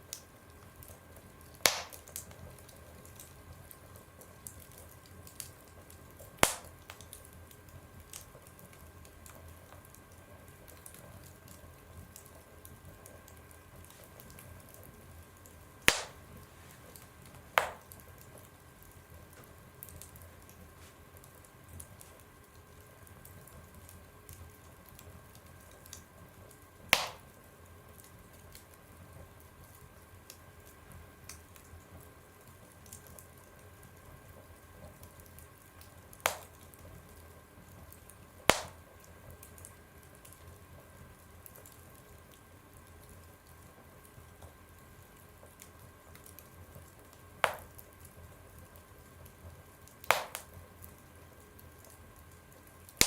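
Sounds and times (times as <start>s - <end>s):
wood fire crackling in a stove: 0.0s - 53.0s
sharp loud fire pops: 1.7s - 2.0s, 6.4s - 6.7s, 15.9s - 16.2s, 17.6s - 17.8s, 27.0s - 27.3s, 36.3s - 36.6s, 38.5s - 38.8s, 47.4s - 47.7s, 50.1s - 50.5s.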